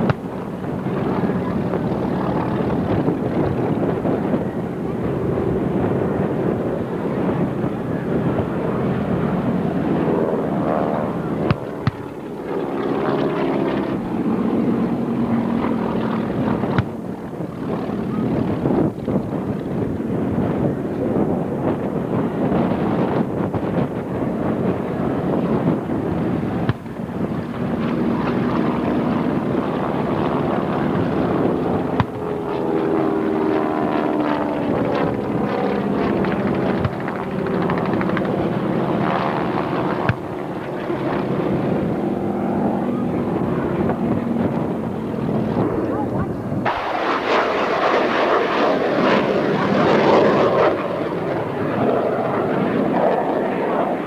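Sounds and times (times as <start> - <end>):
wind noise: 0.0 - 54.0
engine passing by: 27.8 - 54.0.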